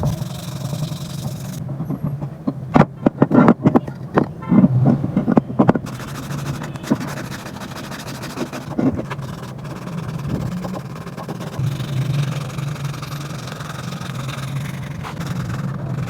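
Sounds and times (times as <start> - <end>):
low machine hum: 11.6 - 16.0.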